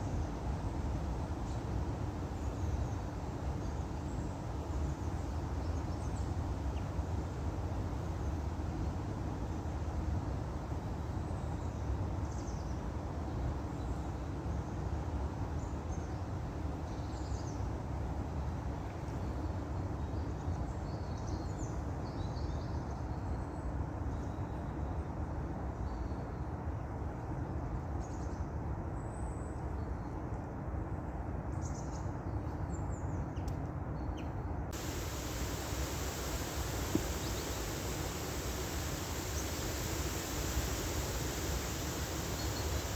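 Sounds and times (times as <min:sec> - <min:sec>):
bird chirps: 0:34.8 - 0:42.9
bright even hiss: 0:34.8 - 0:42.9
low outdoor rumble: 0:34.8 - 0:42.9.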